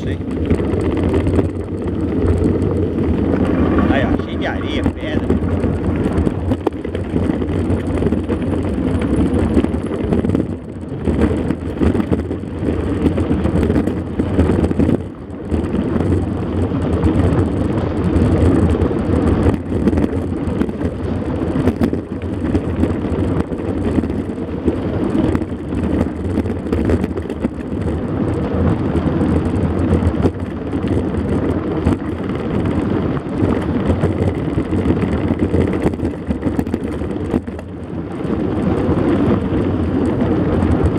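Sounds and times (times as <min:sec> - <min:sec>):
loud low rumble: 0:00.0 - 0:09.8
bike rattling: 0:00.0 - 0:40.9
bike tyres crunching on dirt and stones: 0:00.0 - 0:40.9.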